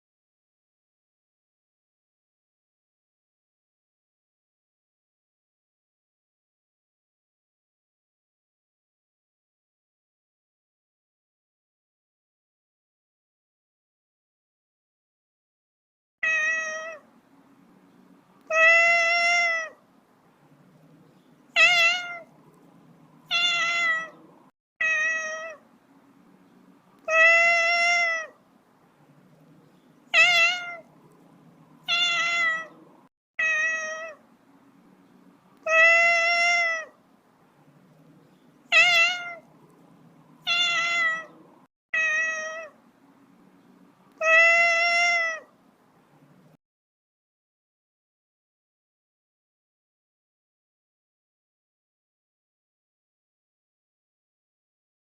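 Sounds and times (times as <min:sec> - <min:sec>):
cat meowing: 0:16.2 - 0:17.1, 0:18.4 - 0:19.8, 0:21.5 - 0:22.6, 0:23.2 - 0:25.6, 0:27.0 - 0:28.4, 0:30.1 - 0:31.2, 0:31.8 - 0:34.2, 0:35.6 - 0:37.0, 0:38.7 - 0:39.8, 0:40.4 - 0:42.8, 0:44.1 - 0:45.5
faint low hum: 0:16.4 - 0:46.6.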